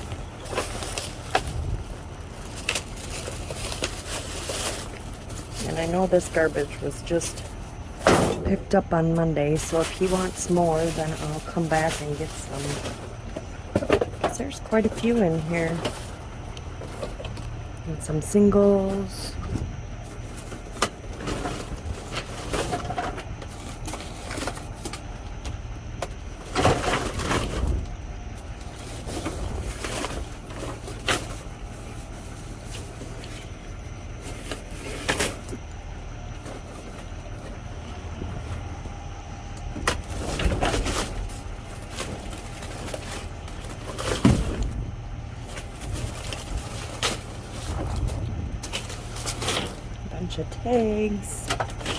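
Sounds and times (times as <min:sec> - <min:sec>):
low rumble: 0:00.0 - 0:04.2, 0:44.3 - 0:51.9
rummaging rustles and crinkles: 0:00.0 - 0:08.0, 0:08.6 - 0:17.7, 0:26.4 - 0:35.6, 0:40.0 - 0:50.0
steady low rumble: 0:00.0 - 0:26.4, 0:27.4 - 0:51.9.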